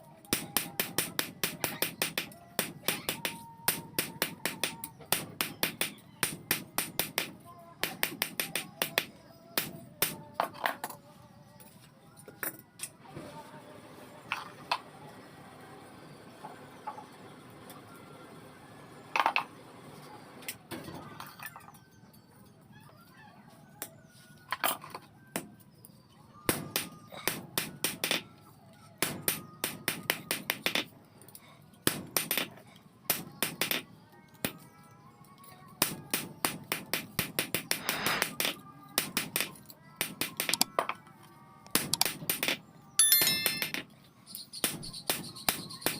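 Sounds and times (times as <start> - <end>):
hammer blows on metal: 0.3 - 10.2, 26.5 - 28.2, 29.0 - 30.9, 35.8 - 40.7.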